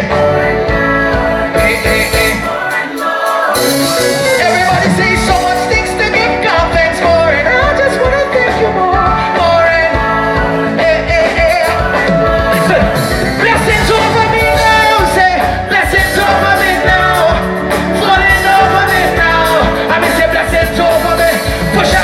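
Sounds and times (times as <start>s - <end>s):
band with steady drum beat: 0.0s - 22.0s
person singing gospel: 0.0s - 22.0s.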